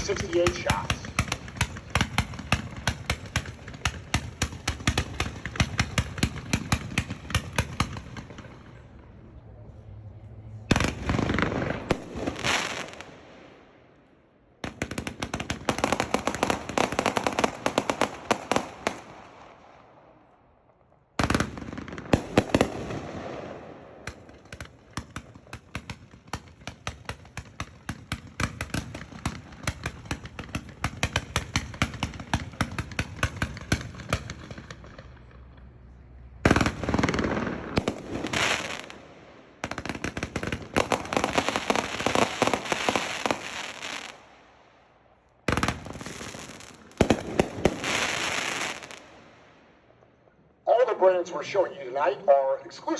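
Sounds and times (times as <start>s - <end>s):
firework cake firing: 39.6s - 44.3s, 45.5s - 49.2s.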